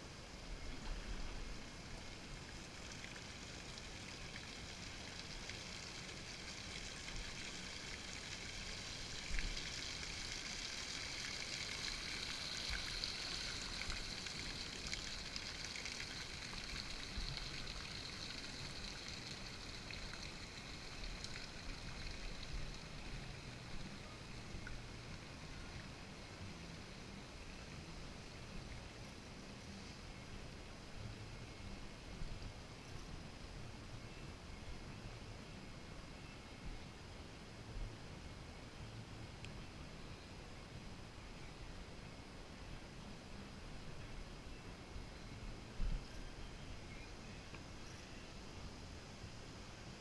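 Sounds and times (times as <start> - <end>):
water rushing and splashing: 0.1 - 29.8.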